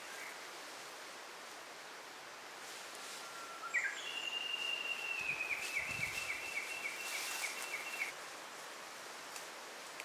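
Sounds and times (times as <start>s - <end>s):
steady outdoor hiss: 0.0s - 10.0s
bird singing: 3.2s - 8.2s.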